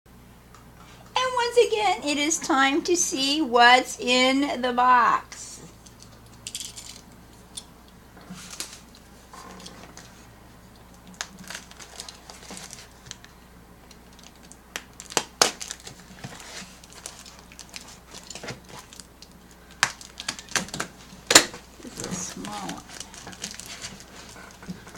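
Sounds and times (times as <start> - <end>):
packaging crinkling and tearing: 10.9 - 24.9
rustling: 14.0 - 24.9.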